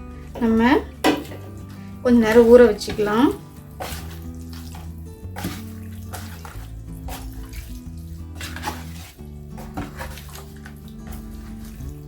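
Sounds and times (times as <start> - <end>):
background music with bass notes: 0.0 - 12.0
wet squelching of raw chicken: 1.3 - 12.0.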